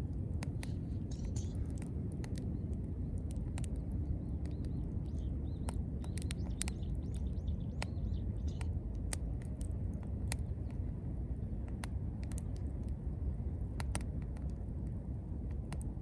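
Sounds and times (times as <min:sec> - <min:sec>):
campfire crackling and popping: 0:00.0 - 0:13.1, 0:13.7 - 0:16.0
low rumble of fire: 0:00.0 - 0:16.0
small birds chirping: 0:00.4 - 0:12.8.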